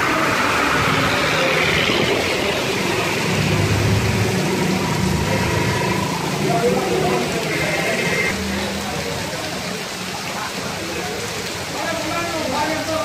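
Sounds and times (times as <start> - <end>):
motor rickshaw engine humming: 0.0 - 9.0
bus driving through water: 0.0 - 13.0
heavy rain: 0.0 - 13.0.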